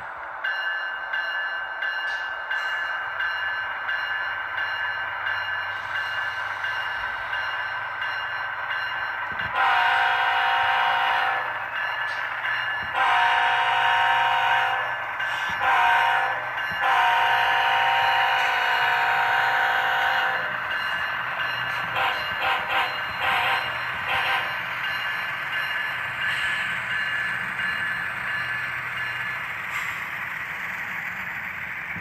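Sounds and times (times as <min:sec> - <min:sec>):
model train horn blasts: 0:09.5 - 0:11.5, 0:12.9 - 0:14.9, 0:15.6 - 0:20.5, 0:22.0 - 0:24.5.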